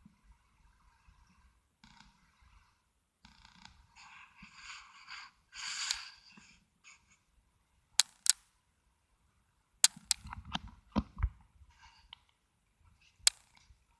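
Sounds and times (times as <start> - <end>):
sharp clicks: 8.0 - 8.5, 9.8 - 11.1, 13.2 - 13.7.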